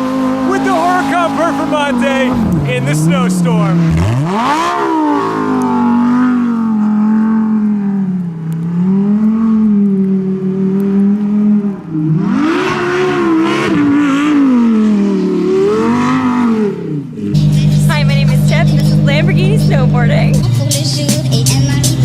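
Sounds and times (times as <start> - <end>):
sports car engine revving: 0.0 - 22.0.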